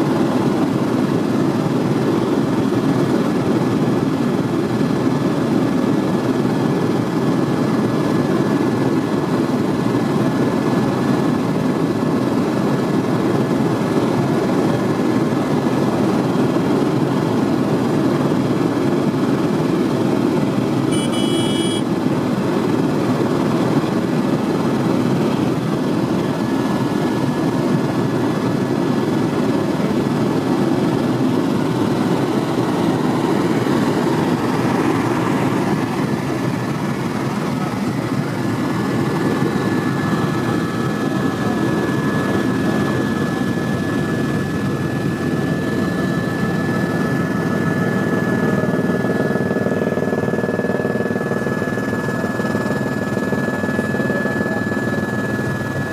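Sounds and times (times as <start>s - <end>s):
helicopter rotor and engine rumble: 0.0s - 55.9s
thin steady whine: 13.3s - 55.9s
short high-pitched tone: 20.9s - 21.8s.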